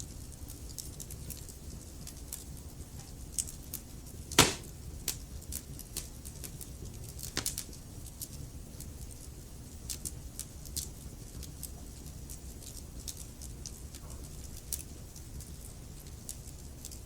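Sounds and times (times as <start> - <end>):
wood fire crackling: 3.2 - 12.3
loud fire pop: 4.4 - 4.7.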